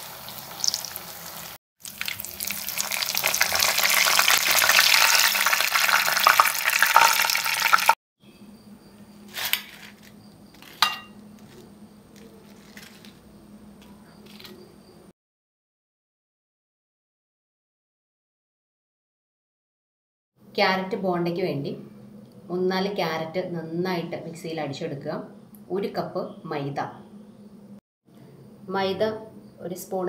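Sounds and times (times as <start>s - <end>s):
food sizzling in oil: 0.0s - 8.0s
spoon clinking glass bowl: 10.8s - 11.2s.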